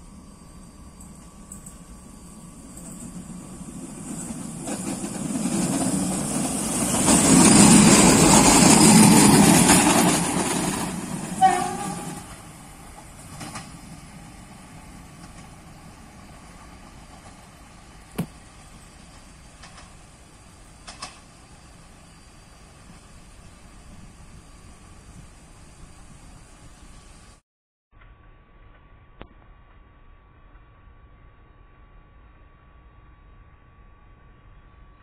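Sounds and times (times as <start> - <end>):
railcar rumbling on rails: 0.0 - 27.4
brief train horn toot: 11.3 - 12.5.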